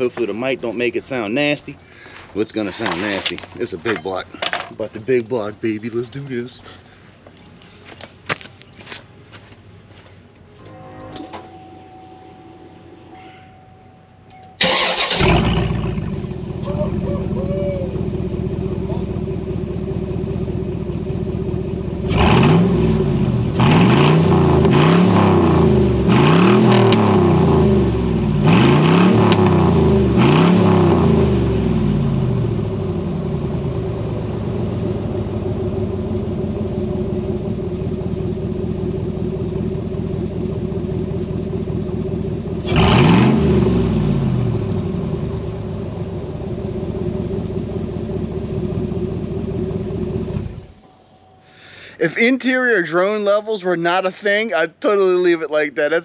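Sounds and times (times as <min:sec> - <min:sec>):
open exhaust engine idling and revving: 0:00.0 - 0:07.0, 0:14.8 - 0:50.8.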